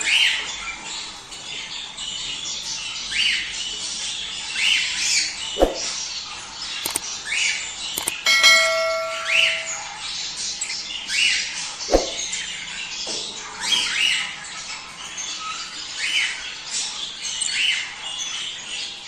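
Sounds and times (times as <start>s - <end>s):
small bell ringing: 8.0s - 10.0s.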